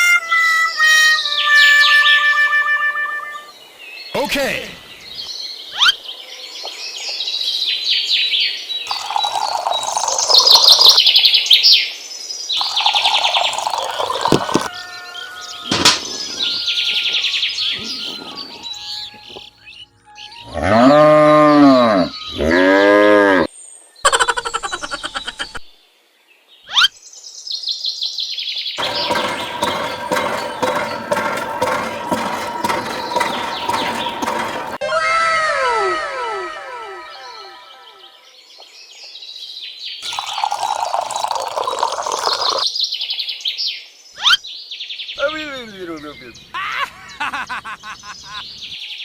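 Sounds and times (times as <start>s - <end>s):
birds chirping rapidly: 8.8s - 11.8s, 12.6s - 22.8s
cow mooing: 20.5s - 23.5s.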